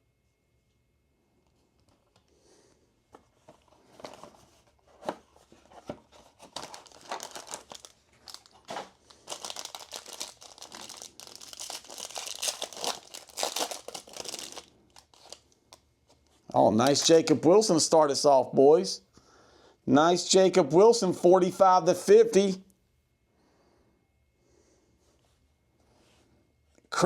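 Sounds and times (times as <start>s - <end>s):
plastic wrap tearing and crinkling: 6.2s - 15.5s.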